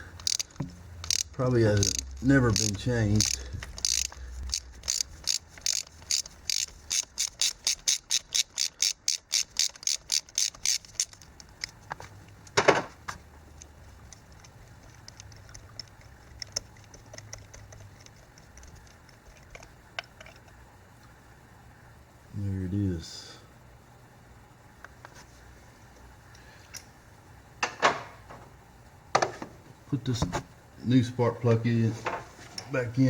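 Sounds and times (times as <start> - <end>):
socket ratchet clicking: 0.1 - 12.6, 13.6 - 20.6.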